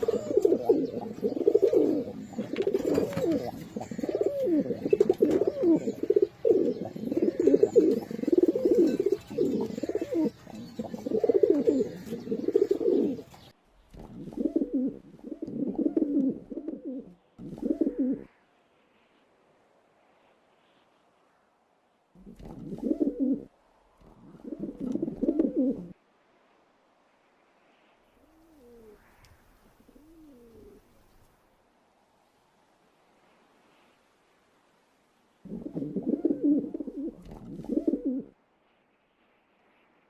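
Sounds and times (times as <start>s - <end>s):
pigeons cooing: 0.0s - 18.3s, 22.2s - 26.0s, 29.8s - 31.0s, 35.5s - 38.4s.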